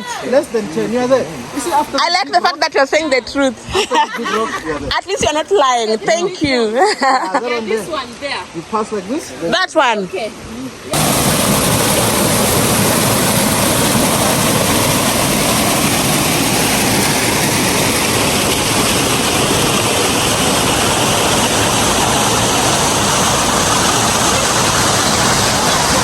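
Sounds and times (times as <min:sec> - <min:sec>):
waterfall rushing: 0:10.8 - 0:26.0.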